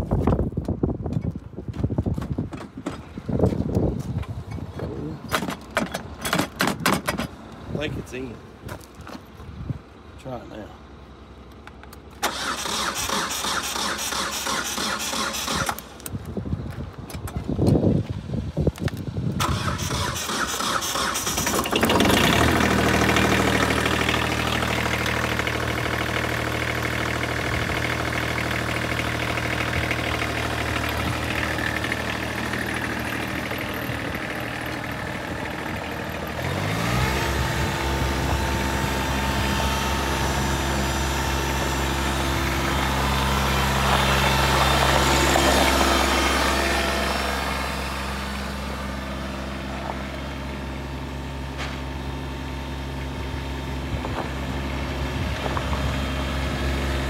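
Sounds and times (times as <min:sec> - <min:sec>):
tractor diesel engine idling: 0:09.9 - 0:16.1, 0:19.4 - 0:57.0.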